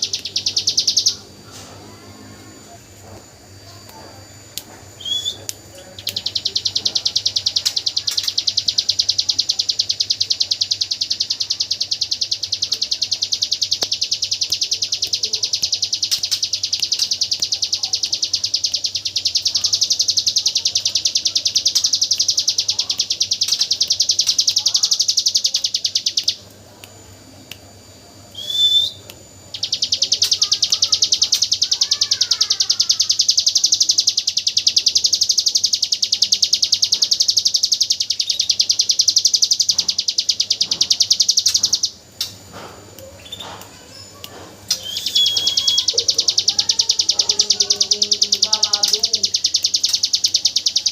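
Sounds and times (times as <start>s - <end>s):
bird fast machine-gun trill: 6.1s - 26.4s, 29.5s - 42.0s, 44.8s - 50.9s.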